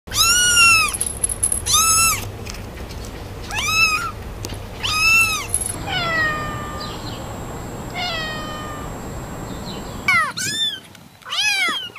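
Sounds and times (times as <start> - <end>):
kitten meowing: 0.1 - 0.9, 4.8 - 7.0, 7.9 - 9.0.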